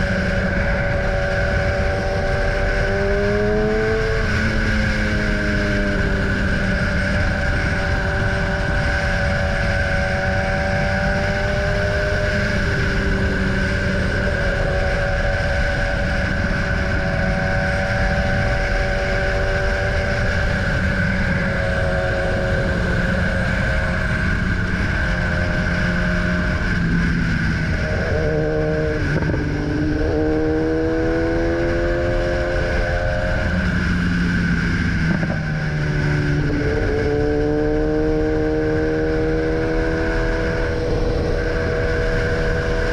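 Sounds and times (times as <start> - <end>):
motorcycle engine running: 0.0 - 42.9
wind rush: 0.0 - 42.9.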